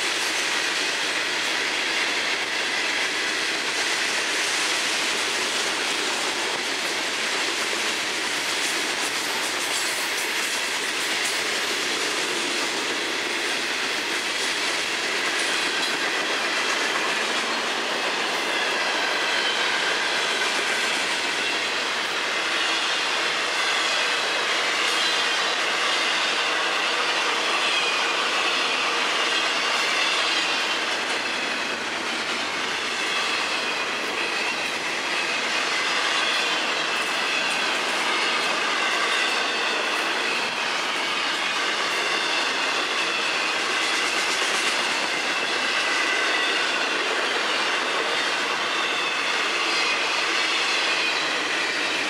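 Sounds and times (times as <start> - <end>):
train wheels rumbling on rails: 0.0 - 52.0
high wheel squeal: 17.5 - 52.0.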